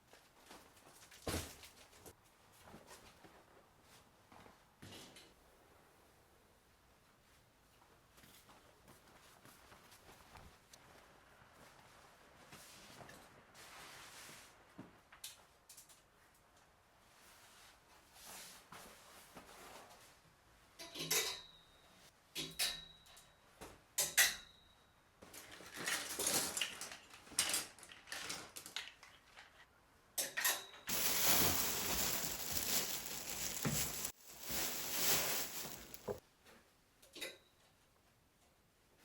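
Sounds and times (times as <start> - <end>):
rustling and scraping: 30.9 - 36.2.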